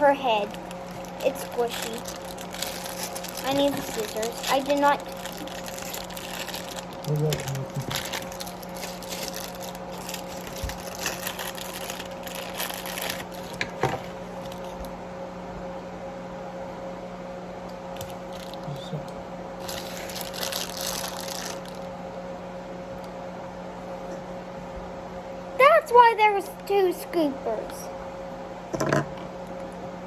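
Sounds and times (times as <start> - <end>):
packaging crinkling and rustling: 0.0 - 14.9, 18.0 - 18.8, 19.6 - 22.0
steady electrical hum: 0.0 - 30.0.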